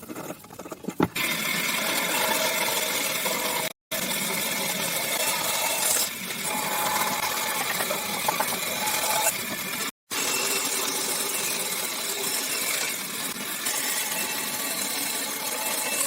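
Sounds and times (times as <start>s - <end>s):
power tool rattling and whirring: 1.2s - 12.2s.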